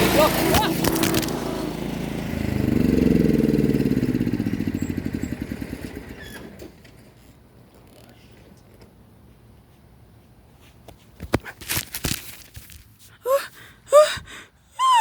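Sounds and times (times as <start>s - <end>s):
lawn tractor engine running: 0.0s - 7.3s.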